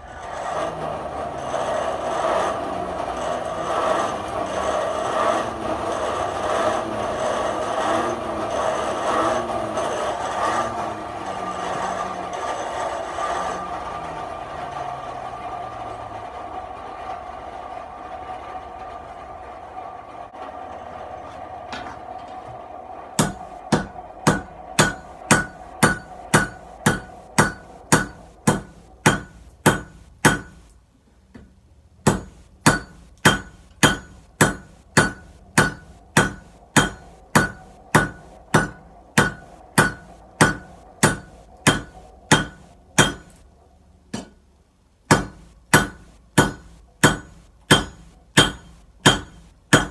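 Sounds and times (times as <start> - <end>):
forge hum: 0.0 - 49.9
hammer striking metal on anvil: 23.2 - 30.8, 32.0 - 43.4, 44.1 - 44.4, 45.1 - 49.9.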